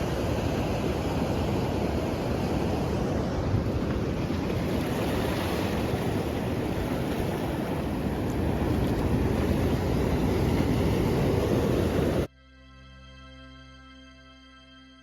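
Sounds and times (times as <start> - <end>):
ocean surf: 0.0 - 12.3
wind rumbling on microphone: 0.0 - 12.3
wind: 0.0 - 12.6.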